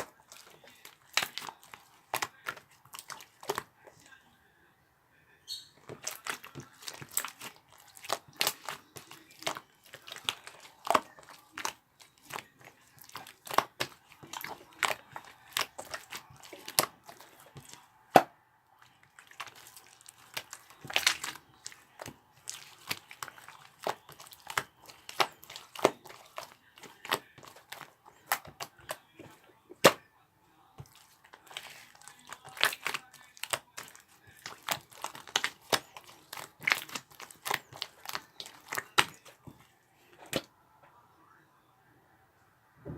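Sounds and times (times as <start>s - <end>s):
hands kneading sticky slime: 0.0s - 4.2s, 5.6s - 30.0s, 30.7s - 40.5s
slime snapping: 19.2s - 29.0s, 30.9s - 39.3s.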